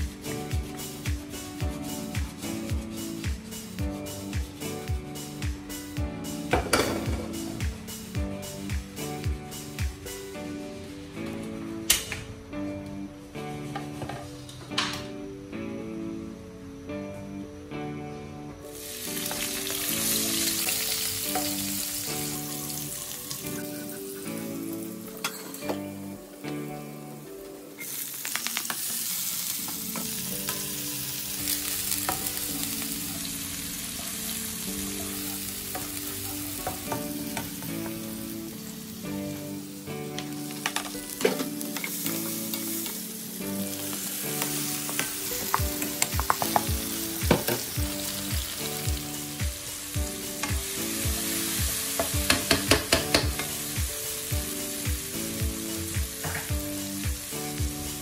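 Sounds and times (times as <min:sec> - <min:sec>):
vegetables sizzling in hot oil: 0:18.8 - 0:25.6, 0:27.6 - 0:58.0.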